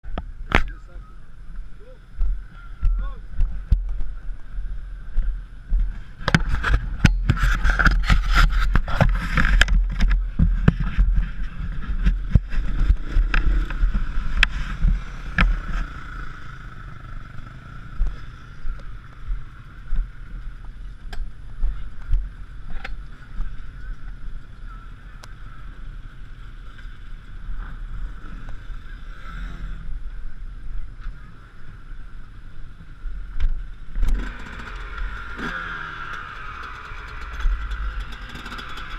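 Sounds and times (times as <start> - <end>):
two-stroke motorbike engine running: 34.0 - 38.9.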